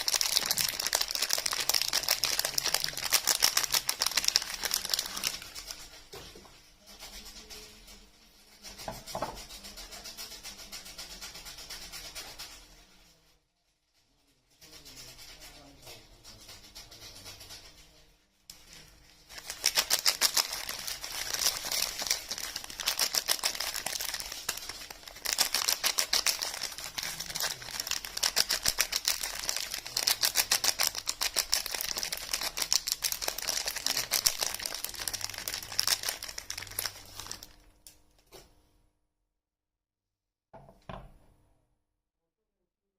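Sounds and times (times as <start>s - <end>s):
soap wrapping crackling: 0.0s - 5.8s, 19.3s - 37.7s.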